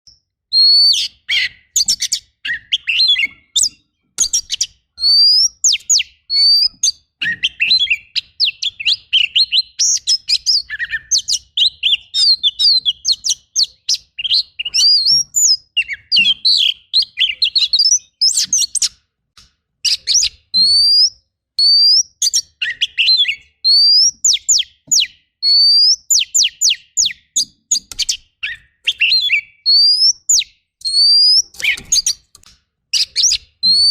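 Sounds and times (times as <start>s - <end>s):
bird singing: 0.0s - 19.0s, 19.8s - 33.9s.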